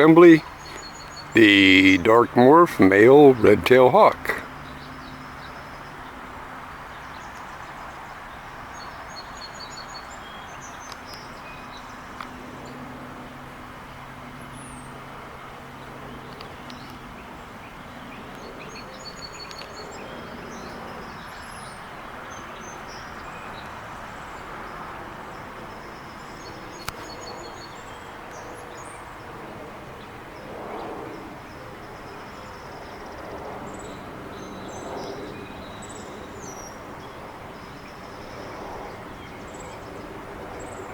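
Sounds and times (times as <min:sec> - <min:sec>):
small birds chirping: 0:00.0 - 0:02.0
distant traffic hum: 0:00.0 - 0:04.8.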